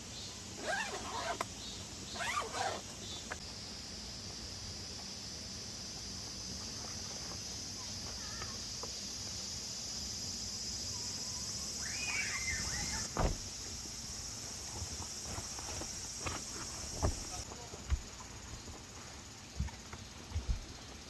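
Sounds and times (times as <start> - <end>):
high-pitched insect chorus: 0.0 - 21.0
thump: 13.0 - 13.6, 16.2 - 18.1.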